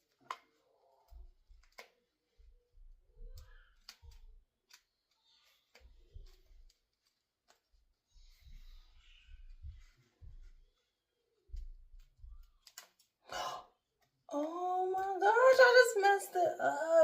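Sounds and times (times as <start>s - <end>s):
scissors snipping: 3.4s - 7.7s, 12.0s - 13.1s.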